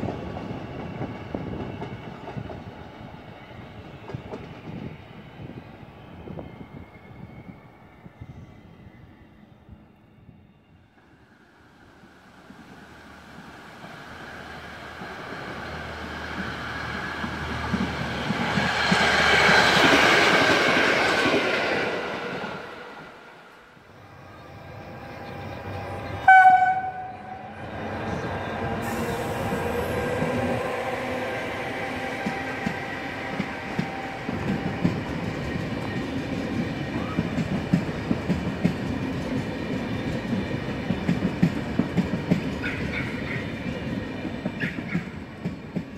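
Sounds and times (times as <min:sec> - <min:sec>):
train passing by: 0:00.0 - 0:45.9
electric locomotive horn blast: 0:25.6 - 0:27.7.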